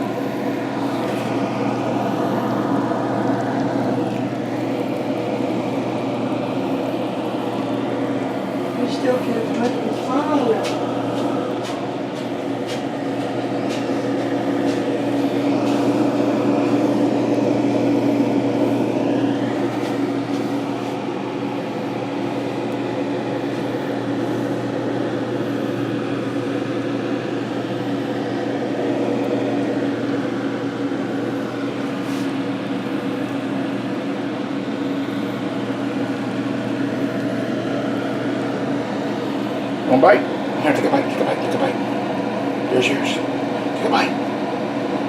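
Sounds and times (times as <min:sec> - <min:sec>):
steady mechanical hum: 0:00.0 - 0:45.0.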